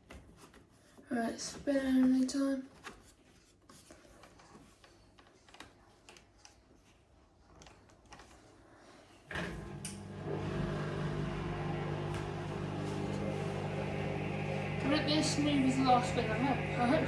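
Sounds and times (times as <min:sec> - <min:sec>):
faint clicks and taps: 0:00.0 - 0:08.5
washing machine humming: 0:09.3 - 0:17.0.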